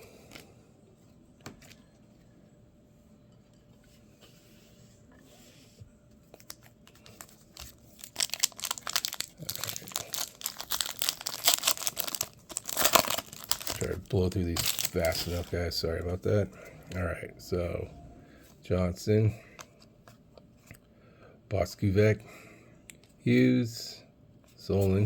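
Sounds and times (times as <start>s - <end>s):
wrapper tearing and crinkling: 7.1s - 15.6s.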